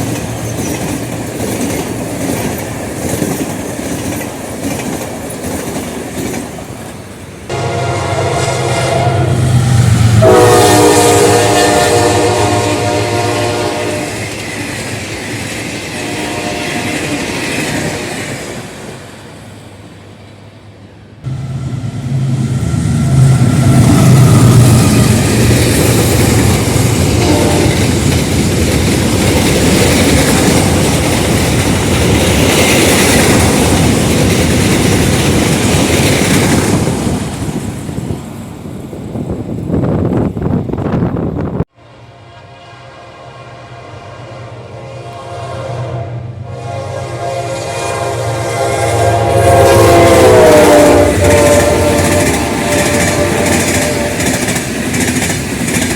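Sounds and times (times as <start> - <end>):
train passing close by: 0.0 - 55.9
locomotive horn: 7.5 - 14.3, 15.9 - 18.3, 21.3 - 25.2, 27.0 - 28.0, 42.0 - 54.5.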